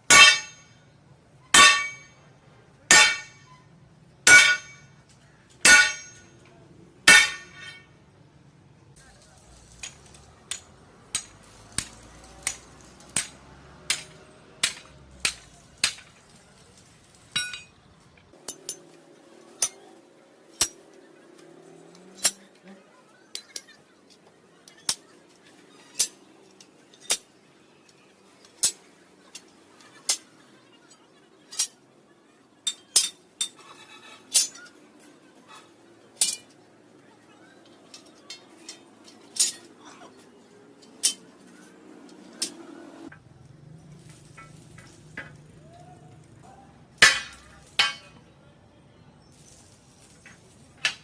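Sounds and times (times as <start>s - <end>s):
tool tapping metal: 0.1s - 0.7s, 1.6s - 2.1s, 2.9s - 3.5s, 4.3s - 4.9s, 5.6s - 6.3s, 7.1s - 7.8s, 9.8s - 16.3s, 17.3s - 17.8s, 47.0s - 48.2s.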